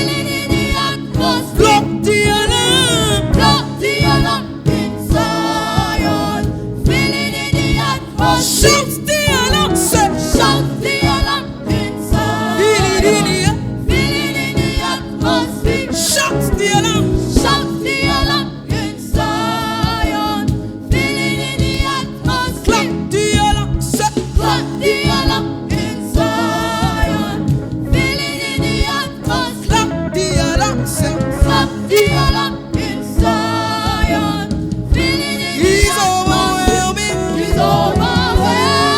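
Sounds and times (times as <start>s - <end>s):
band playing: 0.0s - 38.9s
gospel group singing: 0.0s - 38.9s.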